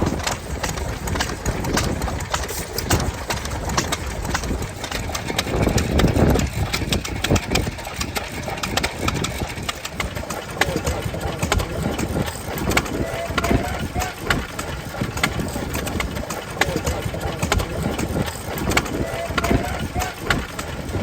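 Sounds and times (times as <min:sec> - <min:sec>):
engine knocks and clicks: 0:00.0 - 0:21.0
stationary engines running: 0:00.0 - 0:21.0.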